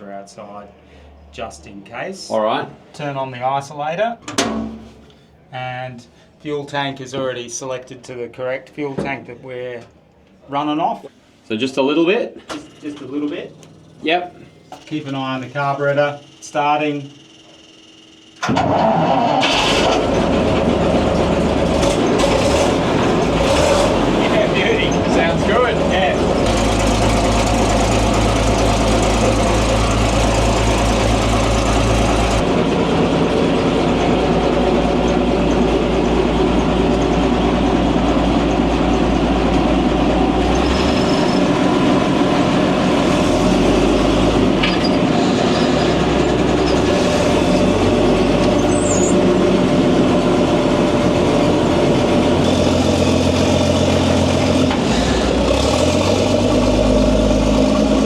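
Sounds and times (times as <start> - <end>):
engine idling: 19.4 - 58.0.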